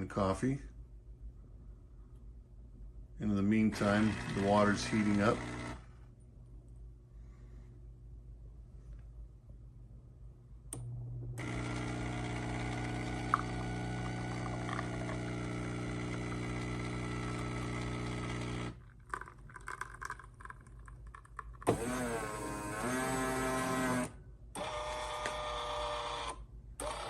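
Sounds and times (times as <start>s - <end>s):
espresso machine pump humming: 3.7s - 5.8s, 10.8s - 20.5s, 21.6s - 27.0s
machine motor running: 3.8s - 5.8s, 11.4s - 18.7s, 21.7s - 27.0s.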